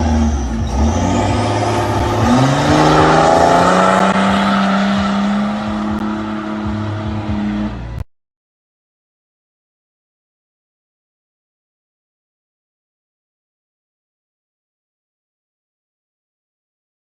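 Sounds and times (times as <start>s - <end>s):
off-road vehicle engine revving: 0.0s - 8.0s.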